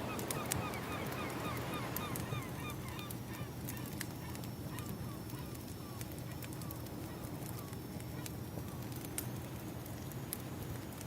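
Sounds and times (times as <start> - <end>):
low rumble of waves: 0.0 - 11.0
wood fire crackling and popping: 2.9 - 11.0.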